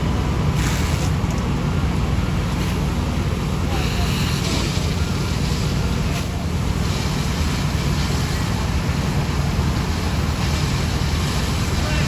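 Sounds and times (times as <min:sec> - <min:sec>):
low engine rumble: 0:00.0 - 0:12.0
hiss of noise: 0:03.6 - 0:12.0.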